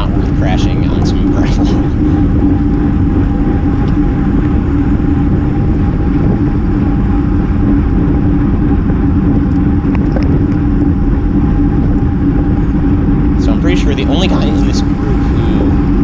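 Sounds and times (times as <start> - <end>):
bike tyre noise on road: 0.0 - 16.0
steady low hum: 0.0 - 16.0
wind rush on microphone: 0.0 - 16.0.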